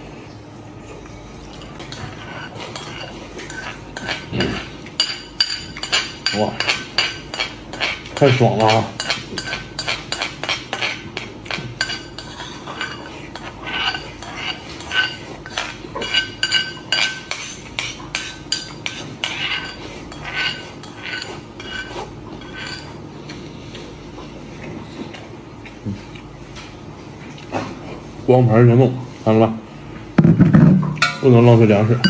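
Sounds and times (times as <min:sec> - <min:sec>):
spoon clinking against ceramic bowl: 0:02.8 - 0:11.0, 0:11.8 - 0:13.1, 0:13.8 - 0:23.0.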